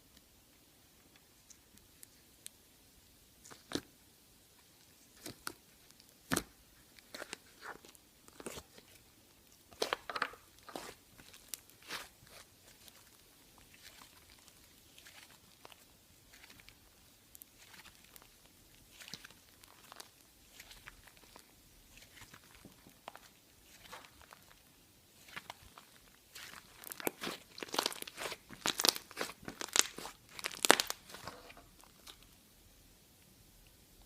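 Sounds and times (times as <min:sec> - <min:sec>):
putty squeezed crackling and popping: 0:09.7 - 0:32.3.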